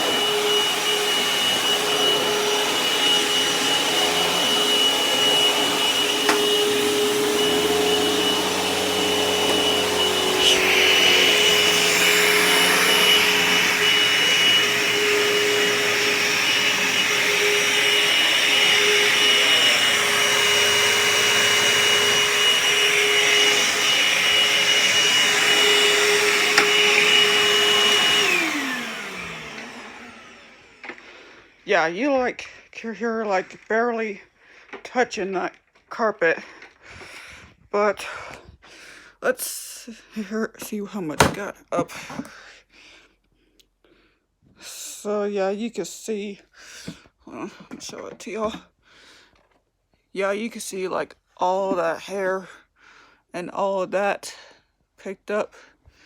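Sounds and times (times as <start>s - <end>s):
vacuum motor winding down: 0.0s - 31.2s
vacuum cleaner running: 0.0s - 31.6s, 41.2s - 41.5s
vacuum cleaner switch click: 6.2s - 6.6s, 26.5s - 27.0s.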